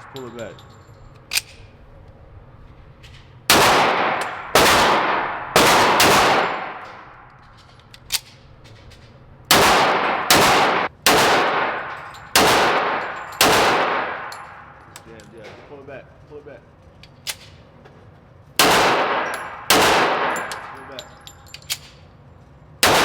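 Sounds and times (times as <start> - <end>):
gunshots ringing out: 3.5 - 7.3, 9.5 - 14.8, 18.6 - 21.0.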